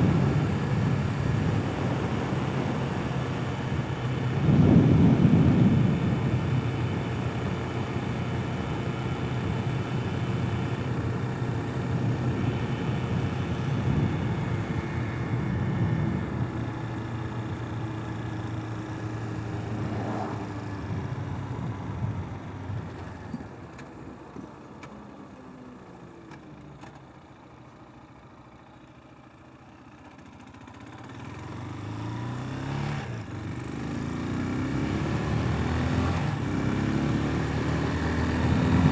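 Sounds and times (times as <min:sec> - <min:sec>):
wind noise: 0:00.0 - 0:03.1, 0:04.2 - 0:06.7, 0:12.2 - 0:16.6
motorcycle engine running: 0:00.0 - 0:25.1, 0:25.8 - 0:38.9.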